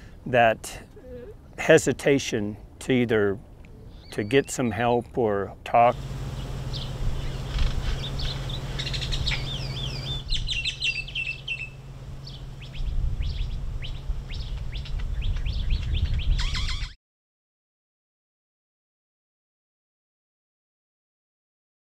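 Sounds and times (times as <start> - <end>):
songbirds chirping: 0.0 - 16.9
low rumble: 5.9 - 16.4.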